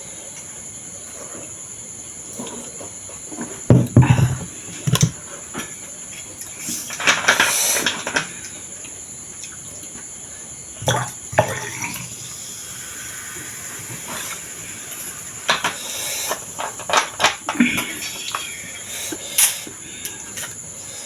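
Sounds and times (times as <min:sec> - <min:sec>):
steady high hiss: 0:00.0 - 0:21.0.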